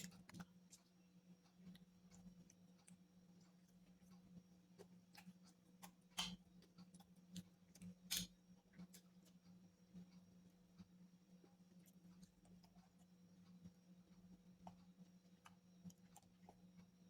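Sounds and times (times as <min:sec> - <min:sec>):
wet chewing clicks: 0:00.0 - 0:09.4, 0:10.8 - 0:17.0
crunchy clicks: 0:00.0 - 0:09.5
steady low hum: 0:00.0 - 0:17.0.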